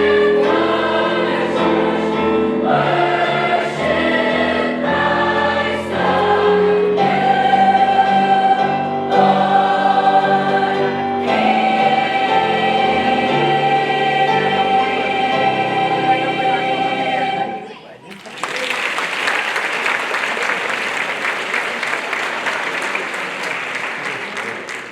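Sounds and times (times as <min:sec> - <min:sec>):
choir singing: 0:00.0 - 0:17.7.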